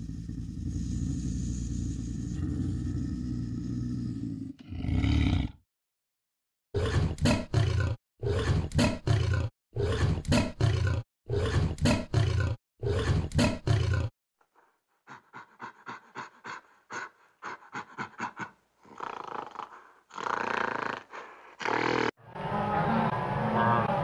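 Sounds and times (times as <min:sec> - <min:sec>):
animal roaring calls: 0:00.0 - 0:05.6
animal panting quickly: 0:14.5 - 0:19.0, 0:21.1 - 0:21.6.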